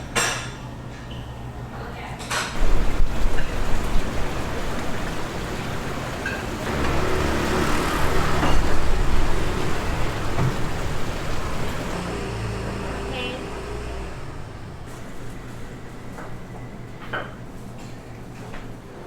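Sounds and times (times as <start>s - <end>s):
vehicle engine passing: 2.6s - 15.6s
road traffic noise: 2.6s - 19.0s.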